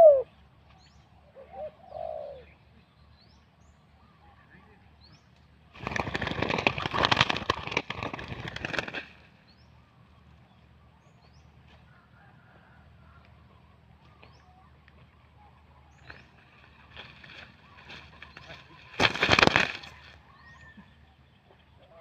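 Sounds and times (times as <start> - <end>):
bird wings flapping: 5.7 - 9.3, 16.0 - 20.2.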